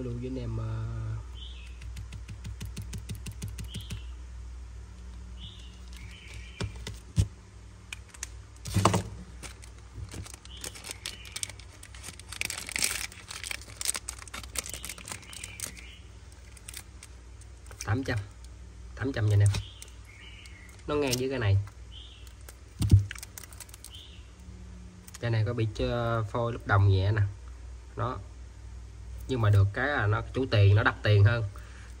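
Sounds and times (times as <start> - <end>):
rustling: 8.0 - 18.4.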